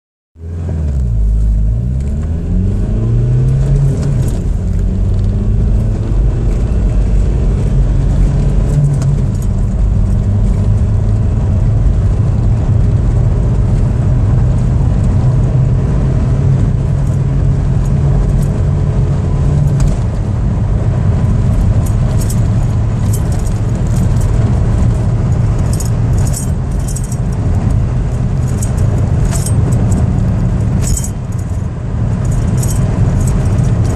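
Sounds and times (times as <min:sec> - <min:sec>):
car engine accelerating hard: 0:00.4 - 0:33.9
light jingling rattles: 0:21.4 - 0:33.9.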